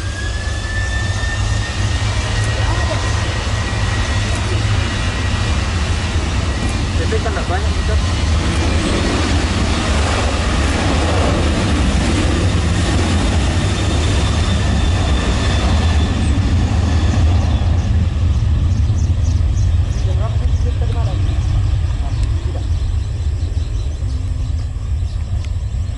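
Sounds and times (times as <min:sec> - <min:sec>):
aircraft engine roar: 0:00.0 - 0:25.9.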